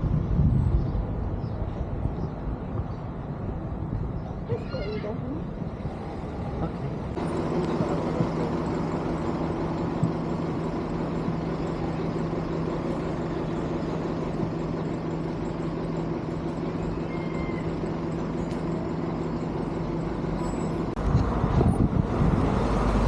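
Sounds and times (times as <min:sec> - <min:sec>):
road noise: 0:00.0 - 0:23.0
vehicle engine running steadily: 0:05.5 - 0:23.0.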